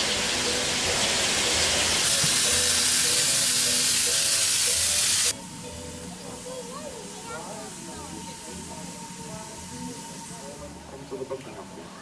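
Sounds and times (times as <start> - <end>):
steam locomotive hissing steam: 0.0 - 5.4.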